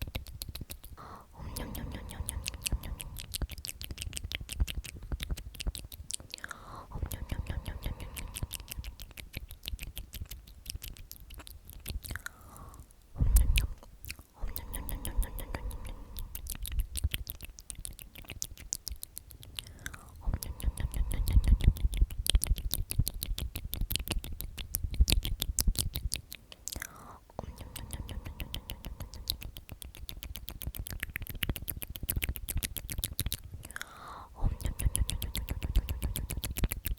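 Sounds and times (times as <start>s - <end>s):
wet mouth clicks and smacking: 0.0s - 36.9s
person whispering: 0.8s - 4.2s, 6.1s - 9.5s, 11.8s - 18.3s, 19.4s - 22.6s, 26.5s - 30.8s, 33.6s - 36.8s.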